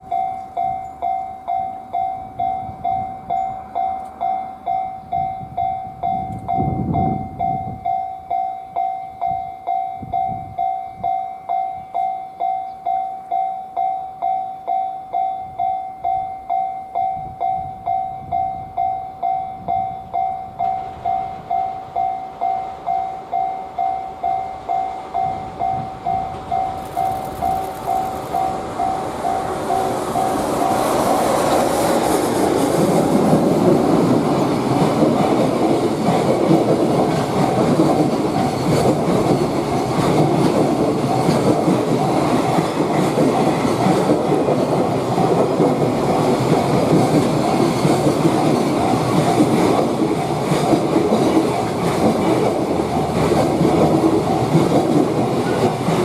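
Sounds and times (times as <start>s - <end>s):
freight train rumble: 0.0s - 13.8s, 14.6s - 56.0s
level crossing bell ringing: 0.0s - 31.2s.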